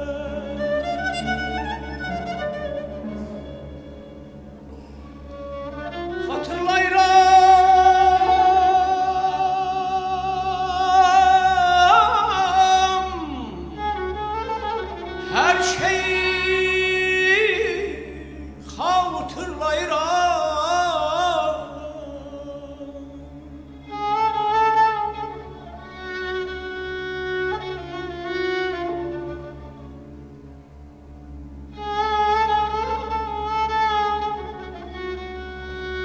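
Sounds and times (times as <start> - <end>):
orchestral strings: 0.0 - 36.0
person singing with trills: 6.2 - 14.0, 15.3 - 23.6.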